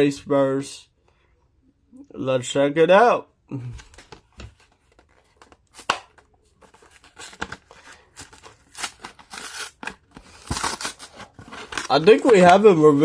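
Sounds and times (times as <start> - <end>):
card and plastic tearing: 3.8 - 12.7
packaging clicks and crinkles: 4.6 - 12.6.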